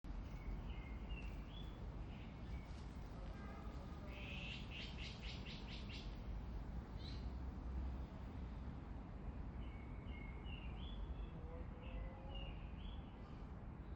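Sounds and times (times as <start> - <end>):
small birds chirping: 0.2 - 3.0, 4.0 - 6.2, 6.9 - 7.3.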